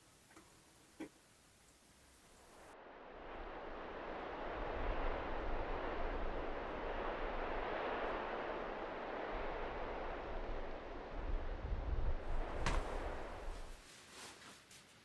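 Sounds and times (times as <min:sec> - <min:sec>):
blizzard wind gusting: 0:02.3 - 0:13.8
wind rumble on microphone: 0:02.5 - 0:13.8.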